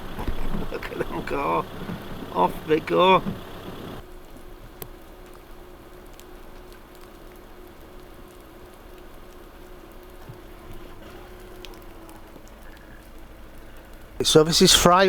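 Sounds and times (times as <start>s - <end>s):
faint steady tone: 0.0s - 4.0s
car running inside cabin: 0.0s - 4.1s, 9.9s - 15.0s
light ticks of drops on car: 0.0s - 14.2s.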